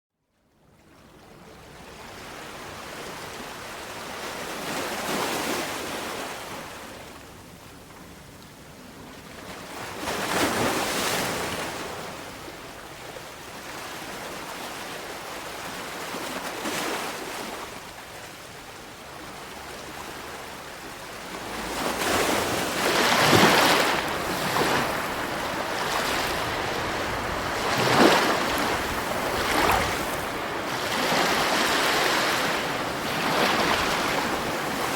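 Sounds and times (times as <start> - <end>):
sea waves breaking on shore: 1.0 - 7.2, 9.1 - 34.9.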